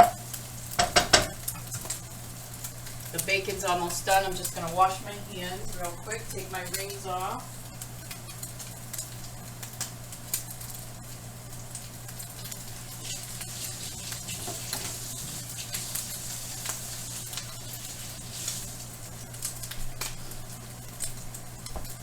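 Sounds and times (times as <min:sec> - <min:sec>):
bacon sizzling with pops: 0:00.0 - 0:22.0
range hood fan hum: 0:00.0 - 0:22.0.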